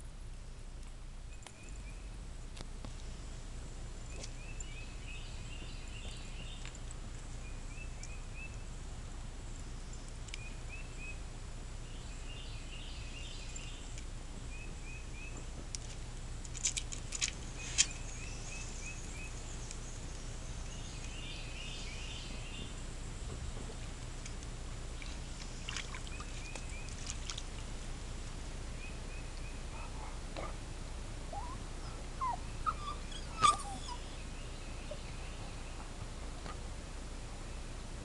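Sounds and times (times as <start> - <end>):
bird chirping: 1.3 - 2.2, 4.1 - 6.8, 7.4 - 8.7, 9.9 - 11.2, 11.8 - 15.5, 17.4 - 22.9, 28.7 - 30.2, 31.3 - 36.0.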